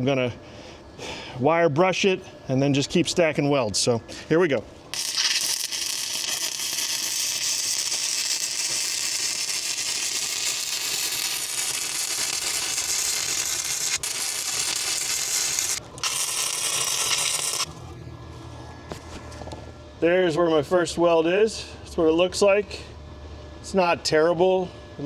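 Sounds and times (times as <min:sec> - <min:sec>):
welding arc crackle: 0:04.9 - 0:17.9.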